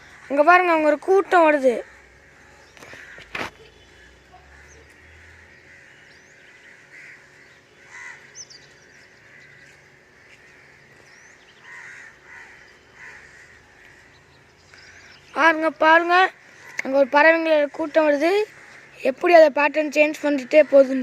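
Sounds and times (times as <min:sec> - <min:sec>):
crows cawing: 0:00.0 - 0:21.0
small birds chirping: 0:00.0 - 0:21.0.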